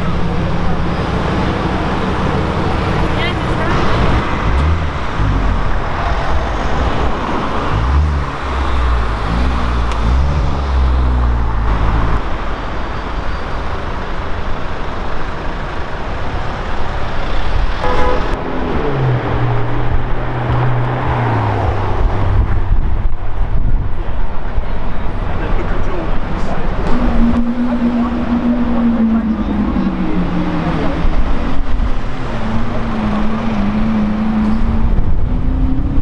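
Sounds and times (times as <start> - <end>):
car engines in traffic: 0.0 - 36.0
car horn toot: 17.8 - 18.4.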